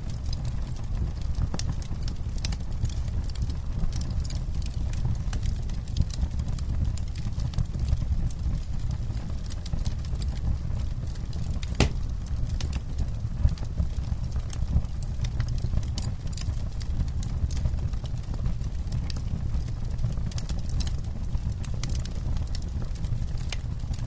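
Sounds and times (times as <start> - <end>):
campfire crackling and popping: 0.0 - 24.0
loud fire snap: 11.2 - 13.6.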